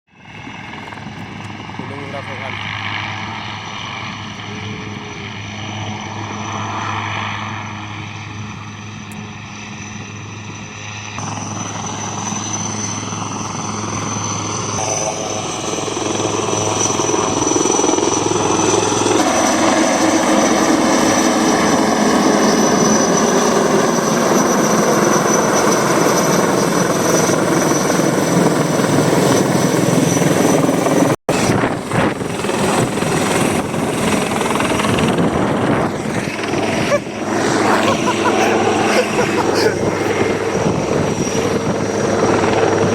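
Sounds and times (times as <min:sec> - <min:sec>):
helicopter rotor running: 0:00.1 - 0:42.9
high turbine whine: 0:00.2 - 0:27.9.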